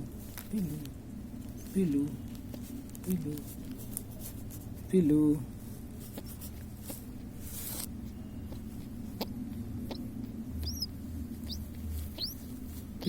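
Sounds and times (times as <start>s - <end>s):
steady low hum: 0.0s - 13.0s
baby pigeon squeaking: 6.1s - 13.0s.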